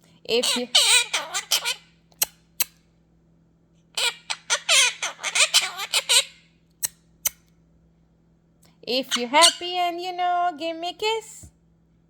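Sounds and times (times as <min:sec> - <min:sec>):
parrot squawking and chattering: 0:00.3 - 0:02.8, 0:04.0 - 0:07.4, 0:09.0 - 0:09.8.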